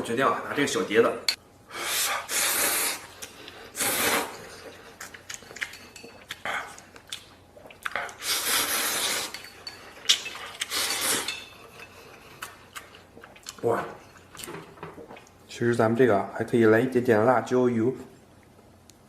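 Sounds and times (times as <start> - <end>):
utensils clinking on bowl: 4.3 - 6.4, 9.0 - 12.1.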